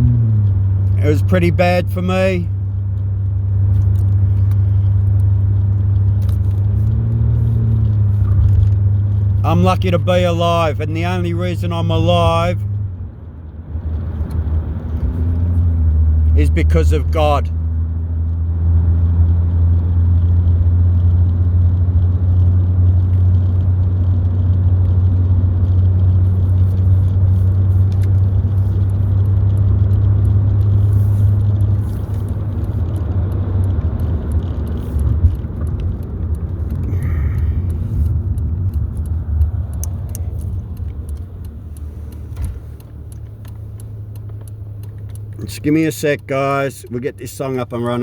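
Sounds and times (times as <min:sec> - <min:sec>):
car cabin rumble: 0:00.0 - 0:48.0
small clicks and rattles: 0:19.0 - 0:46.1.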